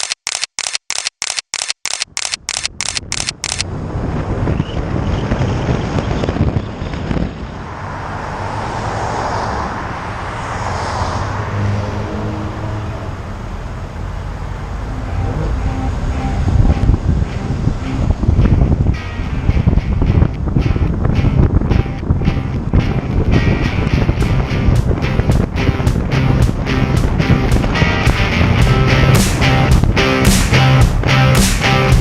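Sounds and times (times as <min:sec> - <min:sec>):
rapid sharp clicks: 0:00.0 - 0:03.6
traffic rumble: 0:02.2 - 0:32.0
wind on microphone: 0:02.8 - 0:08.5, 0:15.1 - 0:32.0.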